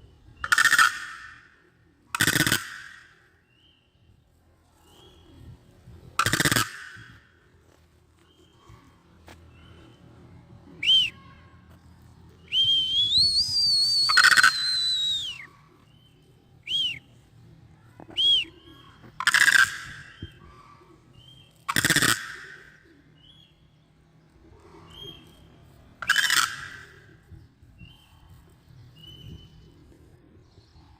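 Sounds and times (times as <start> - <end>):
crane whistled calls: 12.4 - 17.2, 24.9 - 28.3.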